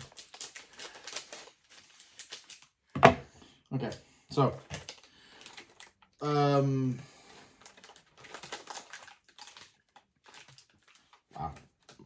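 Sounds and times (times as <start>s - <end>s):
plastic snack packaging crackling: 0.0s - 2.8s, 4.7s - 6.2s, 7.6s - 12.0s.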